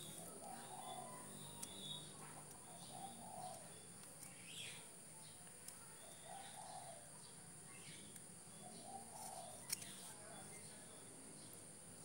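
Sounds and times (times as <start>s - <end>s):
high bird chirps: 0.0s - 4.8s.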